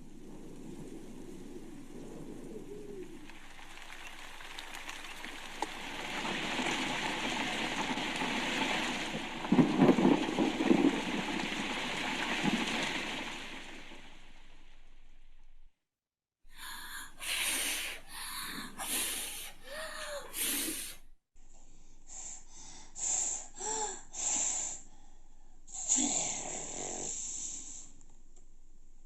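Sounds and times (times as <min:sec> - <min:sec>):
breath-like puffs: 0:16.5 - 0:28.0.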